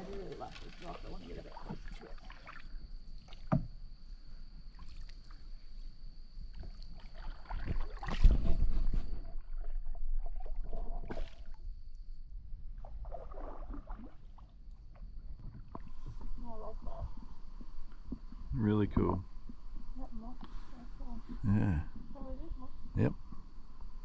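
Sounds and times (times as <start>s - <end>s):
paddle splashes: 0.0s - 3.8s, 4.7s - 5.6s, 6.5s - 11.6s, 12.8s - 14.9s.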